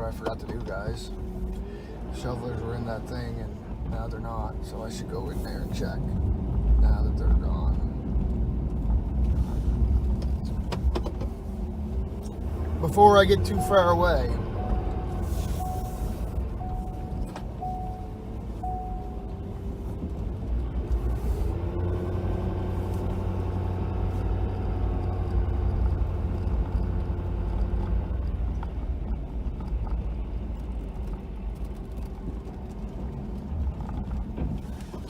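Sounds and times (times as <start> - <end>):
pickup engine rumbling: 0.0 - 35.0
short beeps: 13.4 - 19.6.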